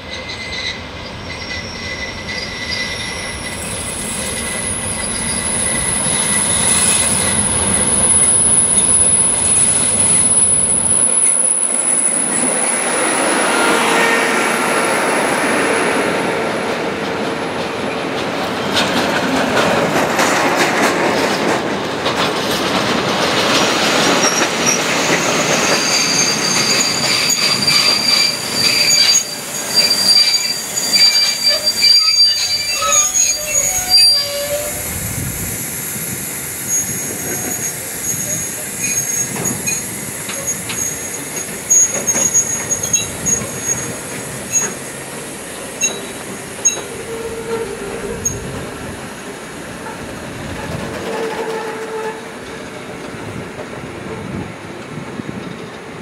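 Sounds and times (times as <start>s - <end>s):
train wheels squealing on rails: 0.0s - 21.5s, 22.1s - 53.2s
diesel locomotive engine: 0.0s - 56.0s
wheels clicking over rail joints: 38.5s - 48.8s.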